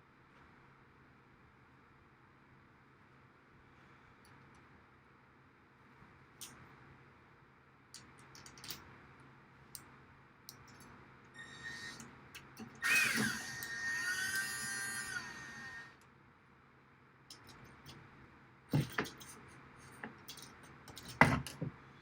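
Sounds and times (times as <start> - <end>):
power drill drilling: 12.8 - 16.0.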